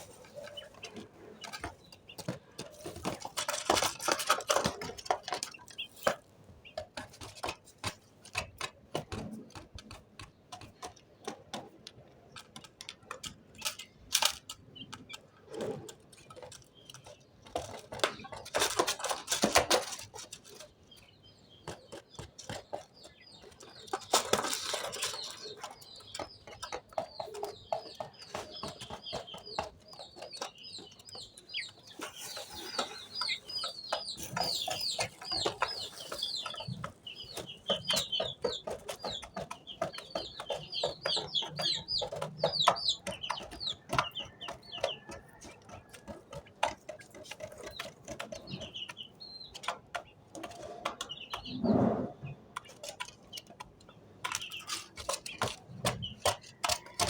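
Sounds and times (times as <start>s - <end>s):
quail pecking food: 0.0s - 57.0s.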